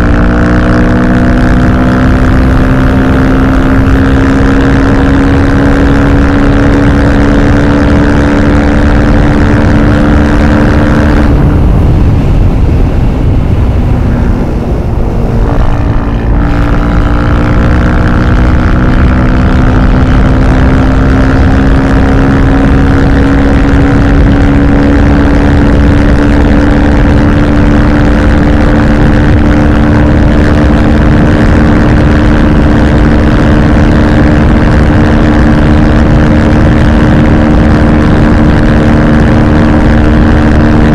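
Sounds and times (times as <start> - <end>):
motorcycle engine running: 0.0 - 40.9
wind rushing: 9.4 - 19.3.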